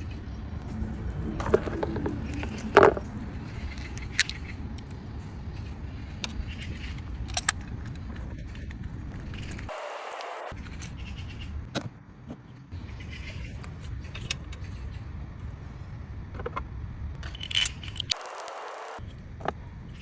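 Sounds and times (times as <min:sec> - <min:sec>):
car engine rumbling: 0:00.0 - 0:06.3
metallic clinks and knocks: 0:17.2 - 0:19.0.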